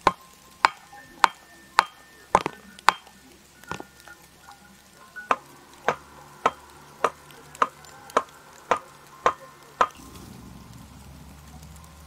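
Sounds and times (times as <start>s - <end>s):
axe striking wood: 0.1s - 3.1s.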